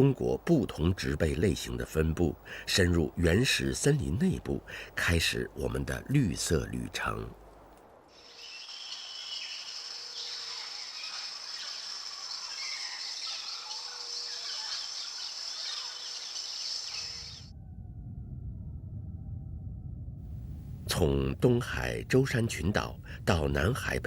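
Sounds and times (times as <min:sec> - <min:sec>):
high insect drone: 0:08.1 - 0:17.5
bird calls: 0:08.2 - 0:17.5
low rumble: 0:17.4 - 0:24.0.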